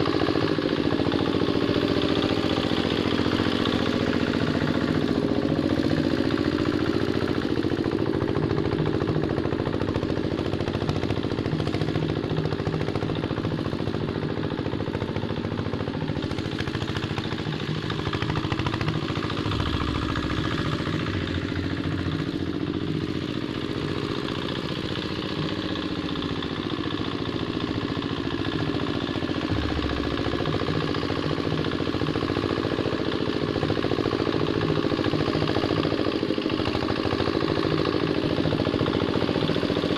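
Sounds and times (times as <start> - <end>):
diesel engine knocking: 0.0 - 39.9
machine rattling: 15.3 - 34.0.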